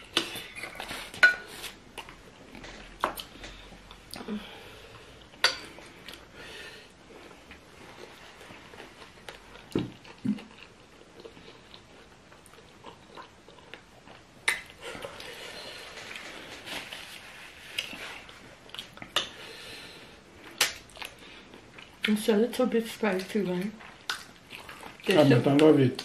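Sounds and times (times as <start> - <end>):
chewing and biting: 8.6 - 15.3.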